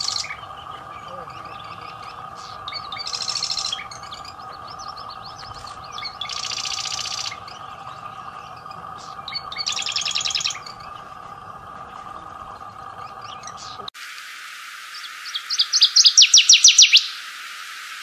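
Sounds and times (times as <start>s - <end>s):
songbird trilling: 0.0s - 13.9s, 14.9s - 17.2s
faint steady hum: 0.0s - 18.0s
short bird chirps: 14.9s - 17.2s.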